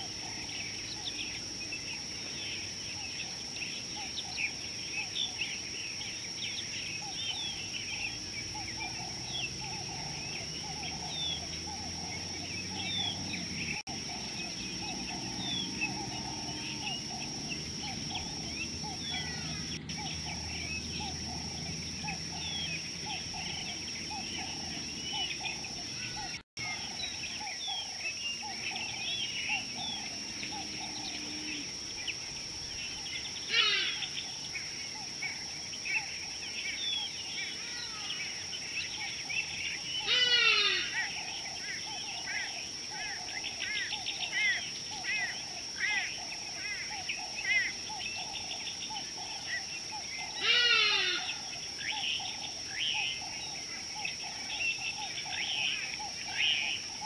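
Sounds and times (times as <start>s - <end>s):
birds chirping: 0.0s - 57.0s
loud descending bird call: 50.4s - 51.4s.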